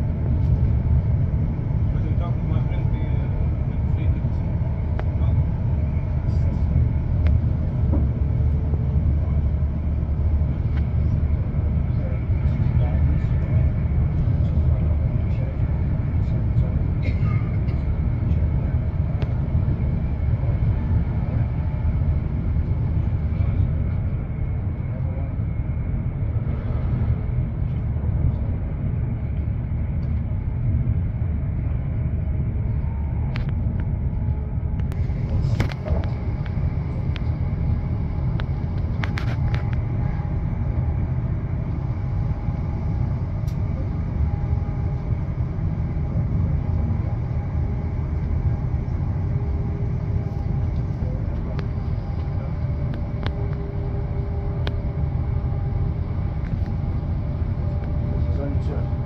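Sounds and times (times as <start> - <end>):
train rumble inside carriage: 0.0 - 59.0.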